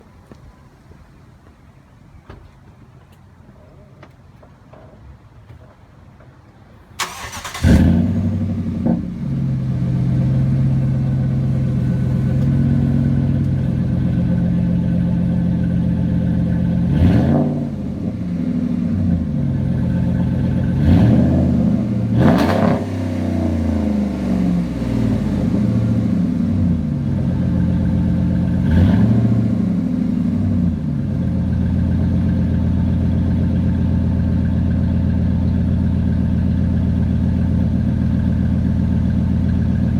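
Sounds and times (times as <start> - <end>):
truck engine idling: 6.8 - 17.1, 17.7 - 22.2, 22.9 - 39.9
engine revving: 7.0 - 10.9, 16.8 - 18.1, 19.0 - 26.5, 27.2 - 30.7.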